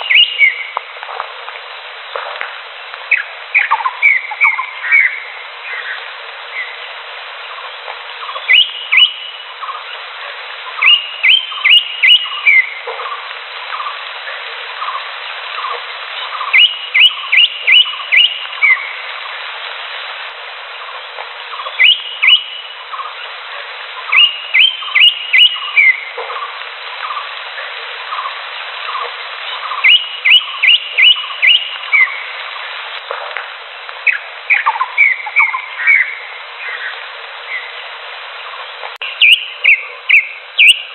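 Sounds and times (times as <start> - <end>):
bird whistling sharp notes: 0.0 - 0.7, 3.1 - 5.2, 8.3 - 9.4, 10.8 - 12.8, 16.4 - 18.9, 21.6 - 22.7, 24.1 - 26.0, 29.7 - 32.2, 34.1 - 36.2, 39.0 - 40.9
chorus of soft bird calls: 0.0 - 0.8, 3.1 - 19.5, 20.7 - 32.8, 34.0 - 40.9.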